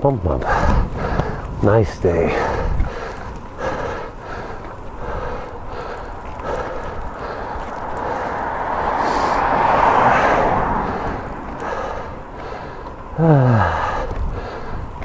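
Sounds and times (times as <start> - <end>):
wind and road noise: 0.0 - 15.0
person groaning: 13.2 - 14.0.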